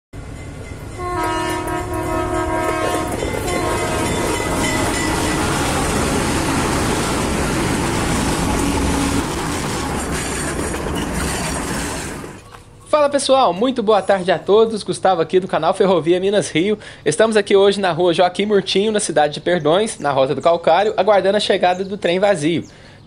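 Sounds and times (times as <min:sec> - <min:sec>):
wheels clicking on rails: 0:00.2 - 0:12.8
passing train rumble: 0:00.2 - 0:13.1
train horn: 0:00.9 - 0:07.0.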